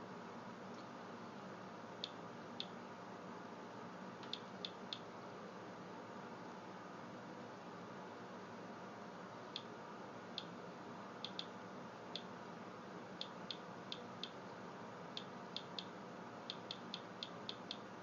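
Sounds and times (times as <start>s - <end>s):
geiger counter clicking: 4.2s - 5.0s, 11.2s - 11.5s, 13.2s - 14.4s, 16.5s - 17.9s.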